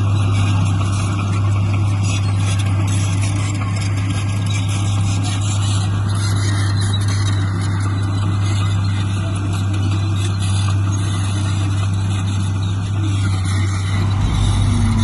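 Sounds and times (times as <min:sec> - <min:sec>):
diesel machine engine running: 0:10.8 - 0:15.0.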